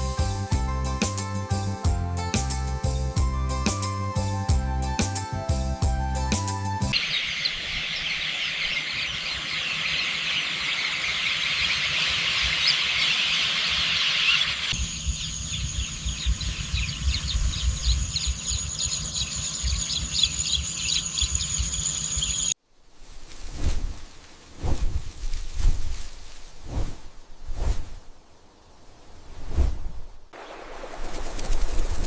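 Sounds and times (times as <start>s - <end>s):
flock of small birds chattering: 6.9s - 22.6s
low wind rumble: 14.7s - 32.0s.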